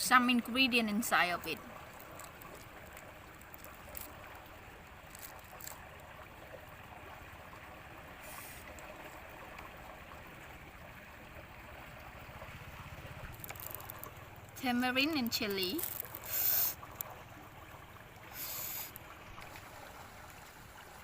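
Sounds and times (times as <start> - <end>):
brief hiss: 8.2 - 8.7, 16.2 - 16.8, 18.3 - 19.0.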